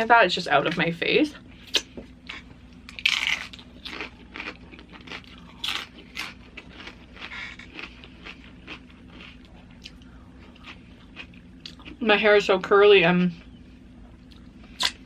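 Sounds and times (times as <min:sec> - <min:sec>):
crunching chips being chewed: 0:01.7 - 0:12.0.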